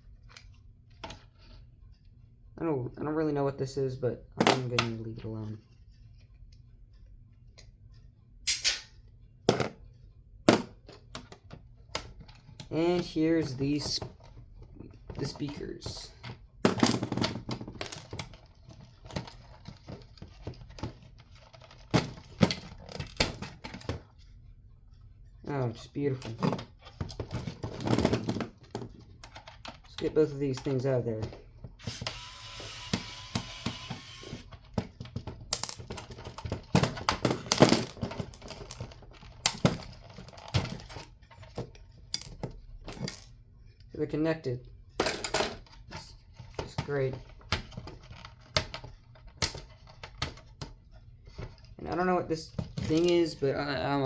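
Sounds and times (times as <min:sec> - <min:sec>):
small clicks and knocks of parts: 0:00.0 - 0:02.2, 0:04.2 - 0:43.9, 0:44.9 - 0:54.0.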